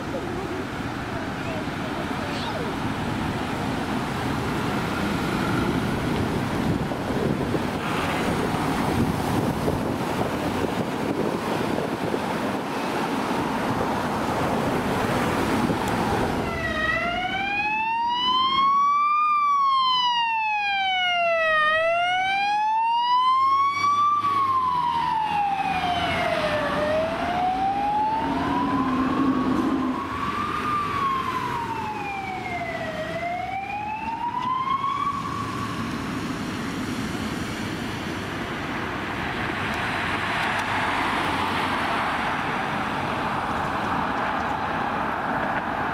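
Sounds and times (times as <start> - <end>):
road traffic noise: 0.0 - 45.9
emergency siren wailing: 14.9 - 36.7
fainter second siren: 16.2 - 36.1.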